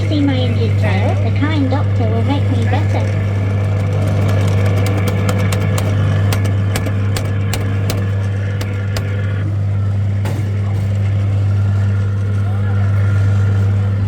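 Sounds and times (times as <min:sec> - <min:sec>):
kiddie ride motor humming: 0:00.0 - 0:14.0.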